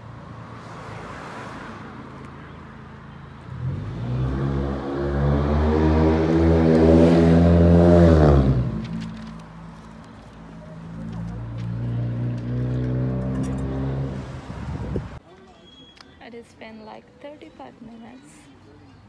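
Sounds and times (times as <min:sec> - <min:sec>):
faint traffic rush: 0:00.0 - 0:19.0
vehicle engine accelerating: 0:03.4 - 0:09.4, 0:10.8 - 0:15.1.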